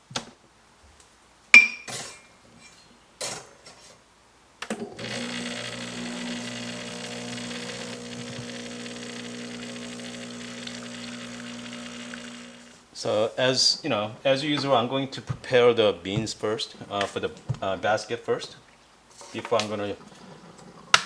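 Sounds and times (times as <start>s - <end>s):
coffee grinder motor grinding: 4.8s - 12.9s.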